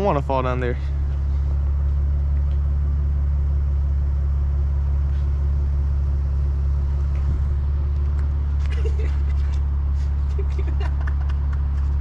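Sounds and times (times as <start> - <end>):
car engine humming: 0.0 - 12.0.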